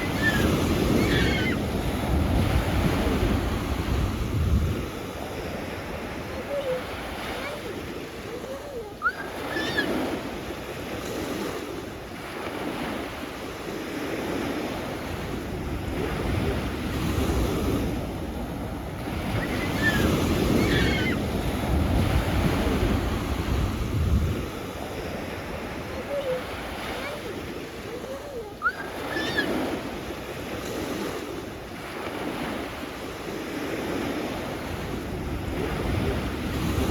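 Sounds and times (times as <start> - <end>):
wind buffeting microphone: 0.0 - 8.5, 15.3 - 27.6
sea waves washing on shore: 0.0 - 36.9.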